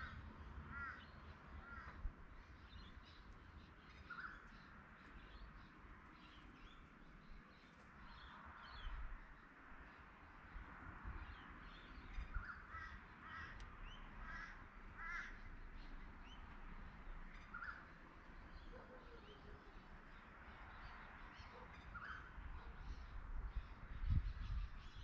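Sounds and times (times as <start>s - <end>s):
crow cawing: 0.0s - 2.0s, 12.7s - 13.6s, 14.2s - 15.4s
small birds chirping: 0.8s - 25.0s.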